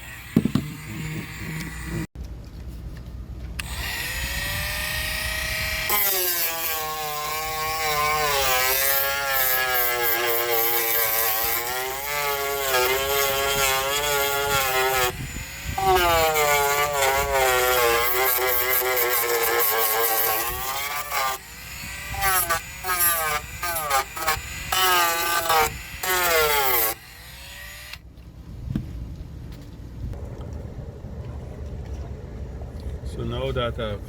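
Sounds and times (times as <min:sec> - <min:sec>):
rotary tool grinding: 0:00.0 - 0:02.1, 0:03.6 - 0:28.0.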